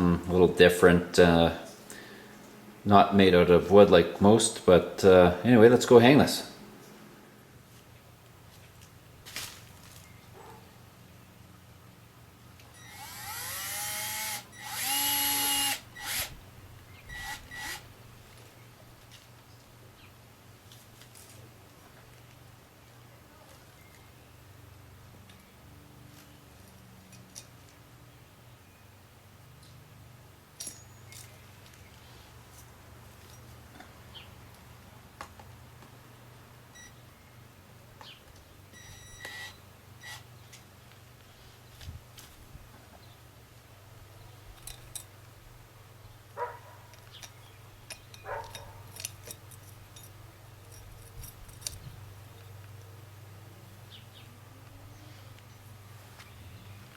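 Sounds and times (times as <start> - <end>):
steady low hum: 0.0 - 20.6
power drill driving a screw: 12.8 - 16.4, 17.1 - 17.9, 39.2 - 40.2
short electronic beeps: 36.8 - 37.0, 38.8 - 40.2.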